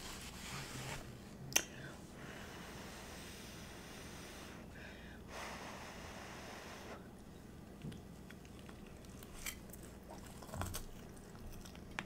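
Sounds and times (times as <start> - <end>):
person chewing food: 7.6 - 12.0.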